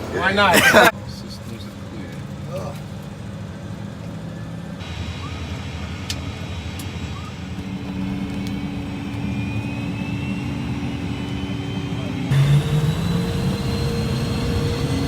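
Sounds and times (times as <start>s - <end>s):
jet engines running: 0.0s - 15.0s
high turbine whine: 3.2s - 15.0s.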